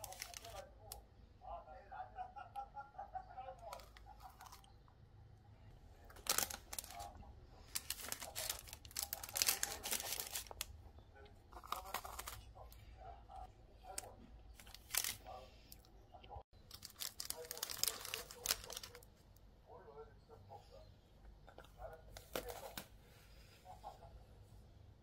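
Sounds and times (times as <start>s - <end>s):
crinkling and tearing packaging: 0.0s - 1.0s, 6.0s - 10.8s, 11.5s - 12.7s, 13.8s - 15.8s, 16.6s - 19.1s.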